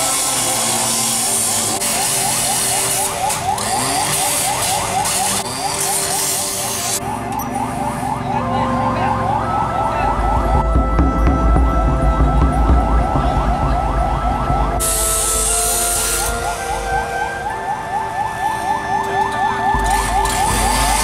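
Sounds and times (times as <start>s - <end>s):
siren in fast yelp mode: 0.0s - 21.0s
steady siren tone: 0.0s - 21.0s
low engine rumble: 7.2s - 18.3s.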